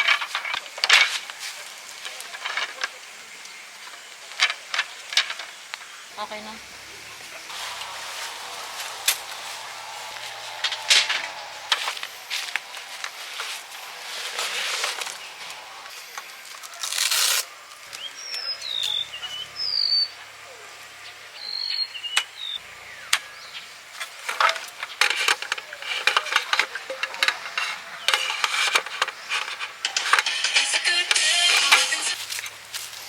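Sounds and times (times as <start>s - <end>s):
rustling of things handled: 31.5s - 33.0s.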